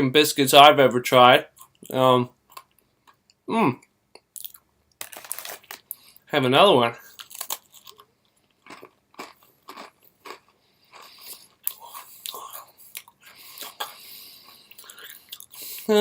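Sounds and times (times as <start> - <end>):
crisp chewing crunches: 4.4 - 6.1, 7.0 - 15.9.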